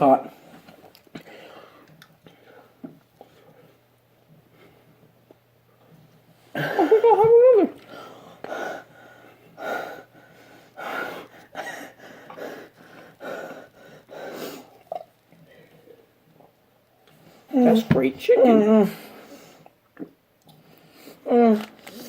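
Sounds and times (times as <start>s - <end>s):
heavy breathing through mouth: 7.9s - 14.8s.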